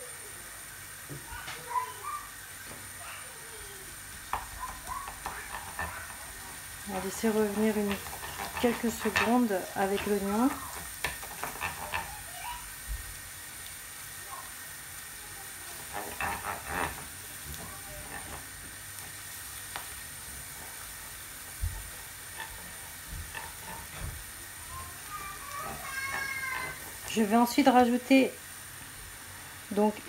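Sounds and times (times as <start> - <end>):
onion sizzling in oil: 0.0 - 30.0
wooden spoon stirring and scraping: 4.2 - 12.7, 15.6 - 28.1.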